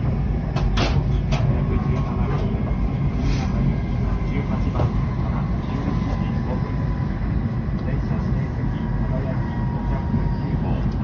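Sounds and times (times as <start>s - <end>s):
train cabin low rumble: 0.0s - 11.0s
faint steady whine: 5.0s - 11.0s.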